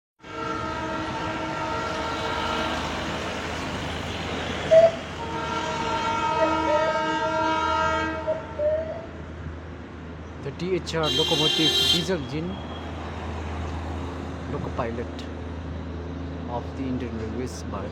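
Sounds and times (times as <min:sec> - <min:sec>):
locomotive horn blasts: 0:00.2 - 0:02.8, 0:04.7 - 0:08.7, 0:11.0 - 0:13.0.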